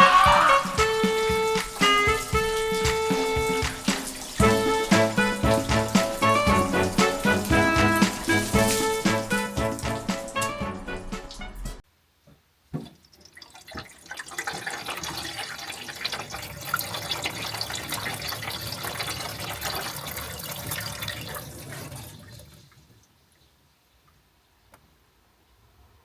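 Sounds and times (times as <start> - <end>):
water running and splashing: 0.0 - 11.8, 13.1 - 23.0.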